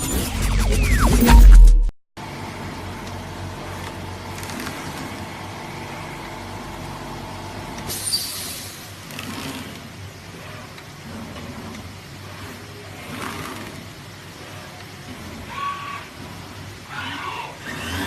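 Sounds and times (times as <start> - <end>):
short hiss: 7.9 - 8.9.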